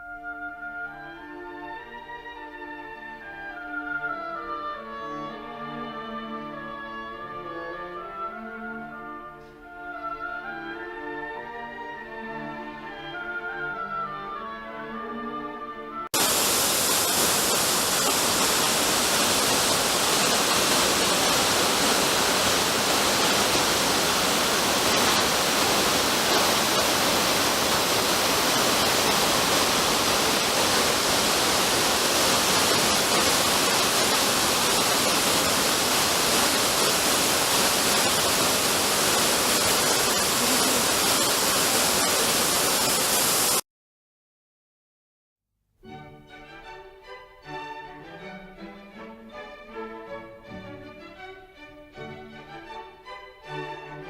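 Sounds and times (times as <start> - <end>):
waterfall rushing: 16.2 - 43.6.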